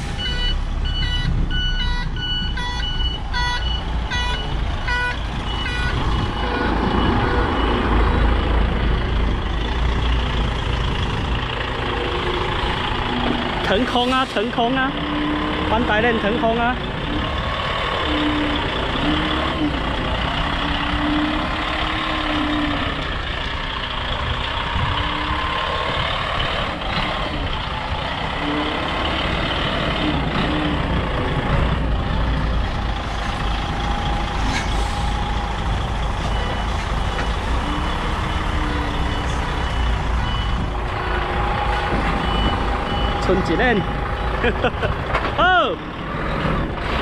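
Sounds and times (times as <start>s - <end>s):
truck diesel engine running: 0.0s - 47.0s
reversing alarm beeps: 0.2s - 8.2s, 35.0s - 40.8s, 41.7s - 44.5s.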